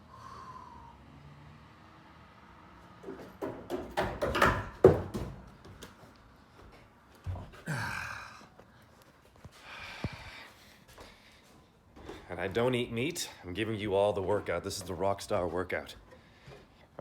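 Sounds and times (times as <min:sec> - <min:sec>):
loud breathy exhale: 0:00.0 - 0:01.1
knocks and thuds: 0:03.0 - 0:05.9.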